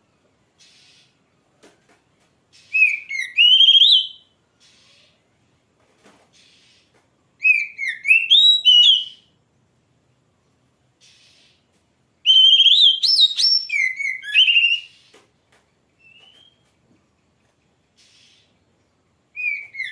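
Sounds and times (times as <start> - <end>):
bird singing whistled phrases: 2.6 - 4.3, 7.4 - 9.3, 12.3 - 15.1, 16.0 - 16.6, 19.4 - 19.9.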